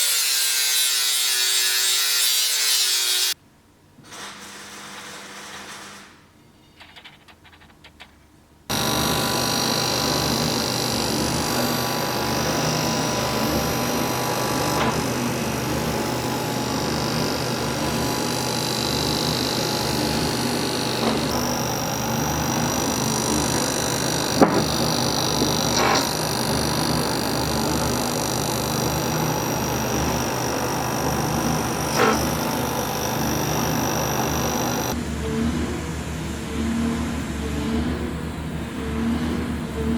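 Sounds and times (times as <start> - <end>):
machine running with hum: 8.7 - 39.9.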